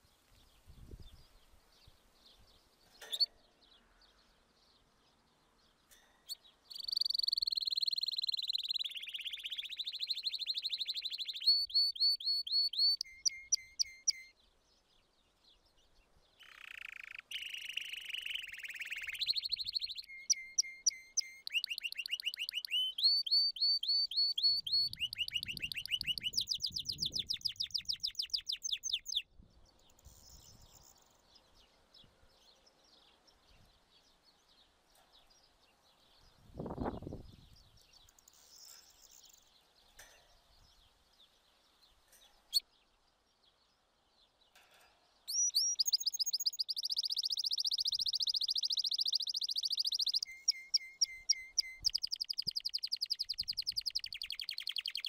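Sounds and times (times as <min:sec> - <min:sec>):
songbird whistling and trilling: 0:06.7 - 0:14.3, 0:16.4 - 0:29.3, 0:45.3 - 0:55.0.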